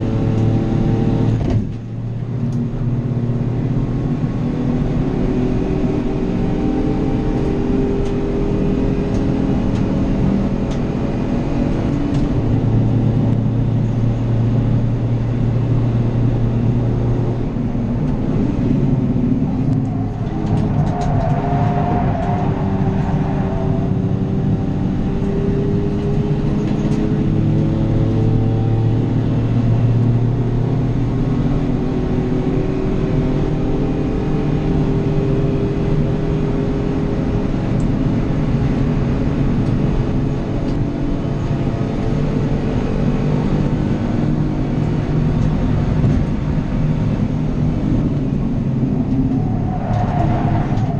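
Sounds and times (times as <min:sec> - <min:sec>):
racing car engine changing gear: 0:00.0 - 0:50.9.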